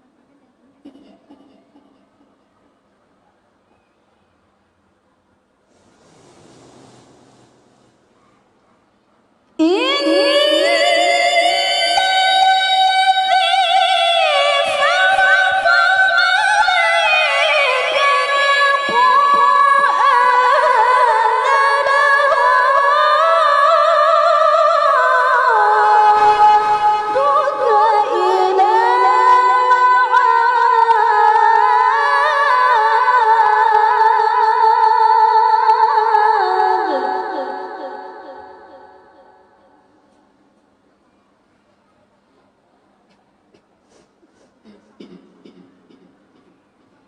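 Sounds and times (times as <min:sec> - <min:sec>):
woman reciting unaccompanied: 0:09.6 - 0:39.9.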